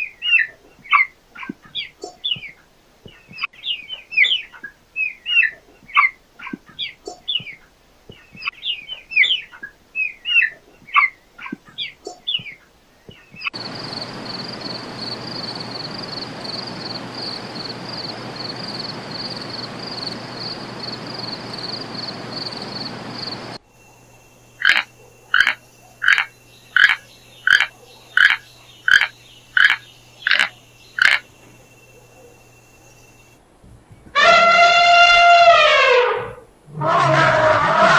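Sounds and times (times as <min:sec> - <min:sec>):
loud animal calls: 0:24.6 - 0:31.4, 0:34.1 - 0:37.9
animal chorus pulsing high note: 0:34.2 - 0:37.9.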